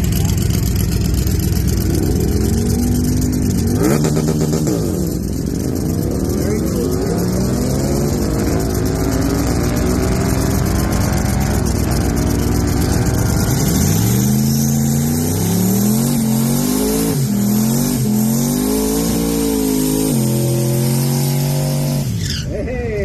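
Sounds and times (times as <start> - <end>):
drag car engine revving: 0.0 - 22.4.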